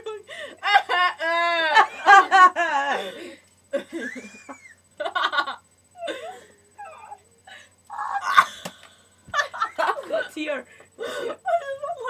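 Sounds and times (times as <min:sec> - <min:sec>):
girls laughing: 0:00.0 - 0:03.0, 0:09.3 - 0:10.2.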